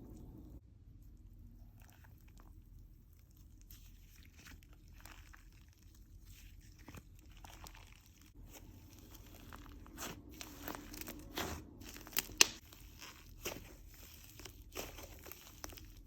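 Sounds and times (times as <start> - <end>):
slime squished by hand: 3.3 - 16.0.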